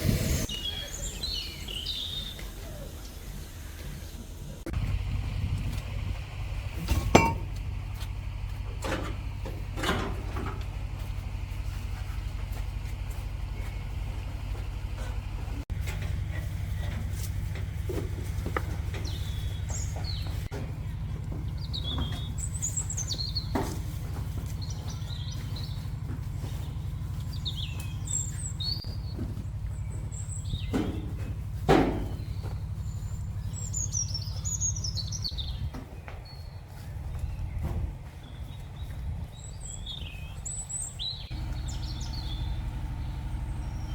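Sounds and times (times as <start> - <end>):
birds chirping: 0.1 - 15.6, 18.4 - 43.9
steady low rumble: 2.9 - 15.8, 37.0 - 43.9.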